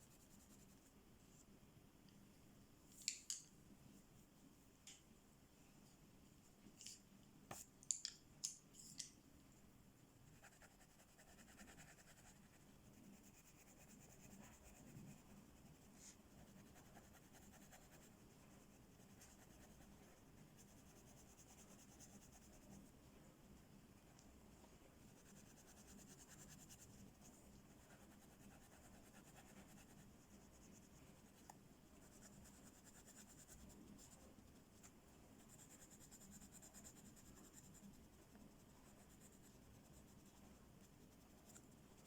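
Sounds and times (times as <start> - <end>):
colouring strokes scratching on paper: 10.3 - 22.9, 25.0 - 42.0.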